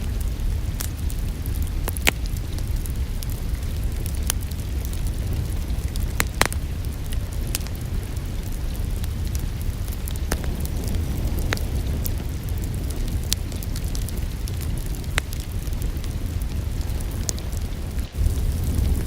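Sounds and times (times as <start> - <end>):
low rumble: 0.0 - 19.0
rain hissing: 0.0 - 19.0
wood fire crackling and popping: 0.0 - 19.0.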